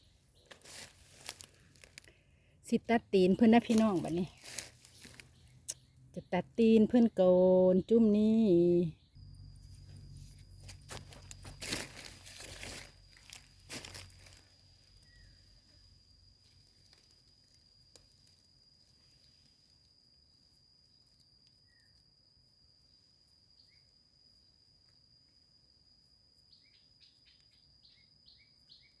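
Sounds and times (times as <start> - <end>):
crunching and rustling of soil: 0.0 - 6.0, 8.2 - 20.2
high-pitched insect call: 0.0 - 29.0.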